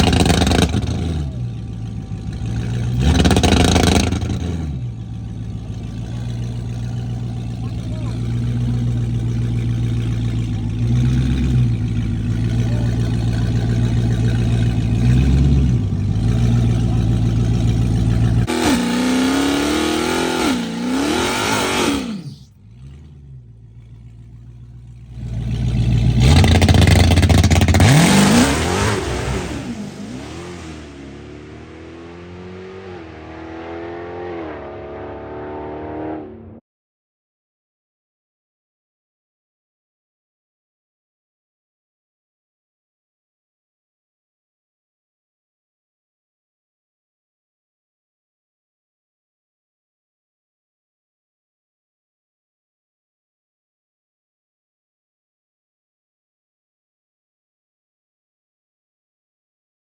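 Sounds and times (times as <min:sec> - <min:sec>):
car accelerating through gears: 0:00.0 - 0:23.5, 0:25.2 - 0:36.6
car engine revving: 0:00.0 - 0:36.6.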